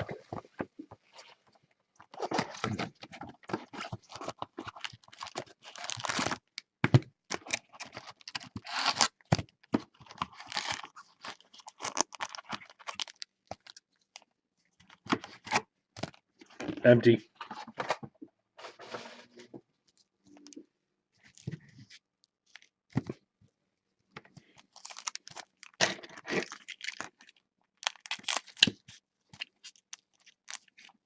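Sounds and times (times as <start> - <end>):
card packs being torn open: 2.2 - 6.5, 7.3 - 9.2, 10.0 - 13.8, 24.6 - 28.8, 29.4 - 30.9
foil wrappers crinkling: 4.6 - 6.4, 10.0 - 13.8, 24.5 - 28.7.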